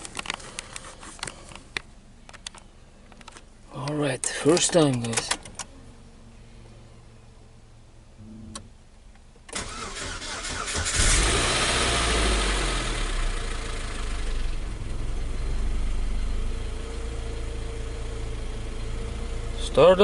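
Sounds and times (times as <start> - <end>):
car engine starting and idling: 7.6 - 20.0.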